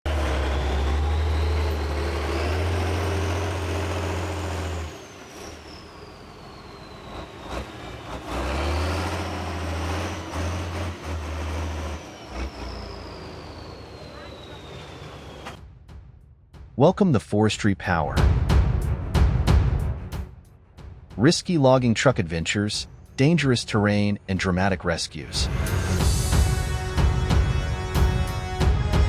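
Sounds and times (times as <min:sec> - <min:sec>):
heavy truck engine running: 0:00.0 - 0:15.6, 0:25.3 - 0:29.0.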